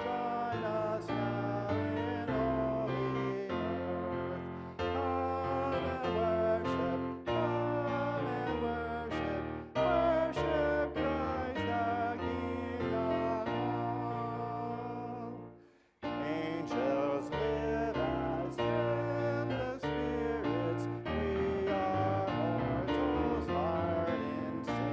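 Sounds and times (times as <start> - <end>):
hymn singing: 0.0 - 24.9.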